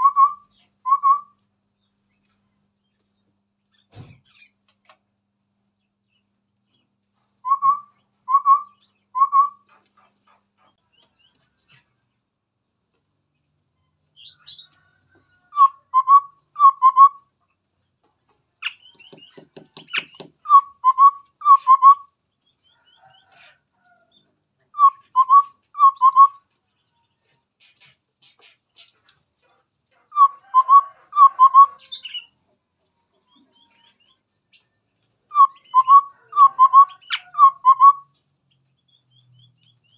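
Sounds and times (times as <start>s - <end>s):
bird whistled hoots: 0.0s - 1.4s, 7.4s - 9.7s, 15.5s - 17.2s, 19.9s - 22.1s, 24.7s - 26.4s, 30.1s - 32.2s, 35.3s - 38.1s.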